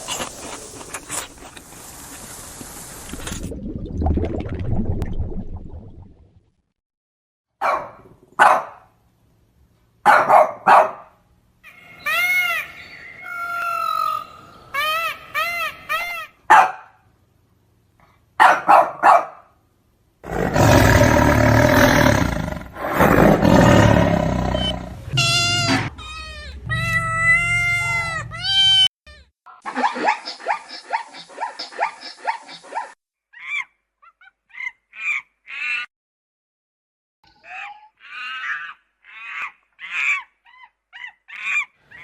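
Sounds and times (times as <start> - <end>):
rising and falling animal cries: 11.6 - 16.4, 20.4 - 35.9, 37.4 - 42.0
wavering pitched animal cries: 11.6 - 16.4, 24.4 - 32.8, 37.4 - 42.0
rough roar-like animal call: 20.2 - 28.0.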